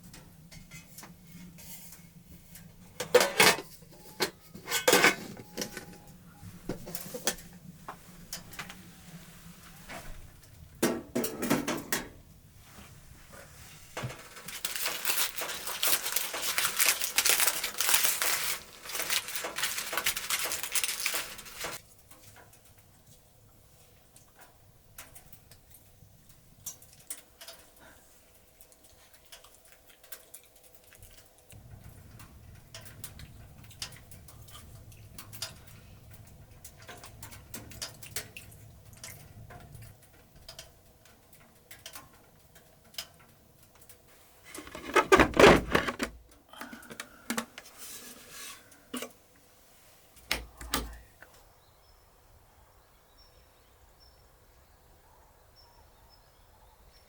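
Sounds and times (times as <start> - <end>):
small objects clicking and knocking: 14.0 - 22.8.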